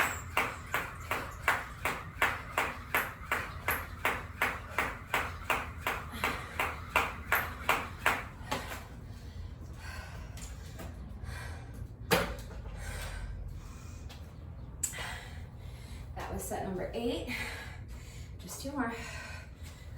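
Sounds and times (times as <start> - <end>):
jump rope slapping the floor: 0.0 - 9.0.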